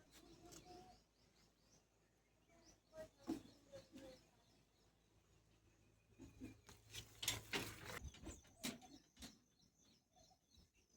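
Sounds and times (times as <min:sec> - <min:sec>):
faint birds chirping: 0:00.0 - 0:10.9.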